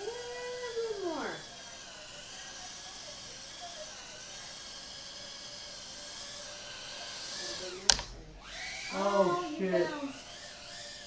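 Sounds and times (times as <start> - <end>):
drone motors whining: 0.0 - 11.0
drone knocking into something: 7.8 - 8.9.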